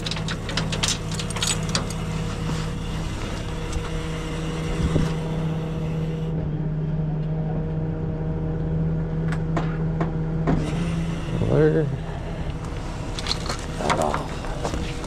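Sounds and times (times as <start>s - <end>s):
truck engine idling: 0.0s - 6.3s, 12.1s - 15.0s.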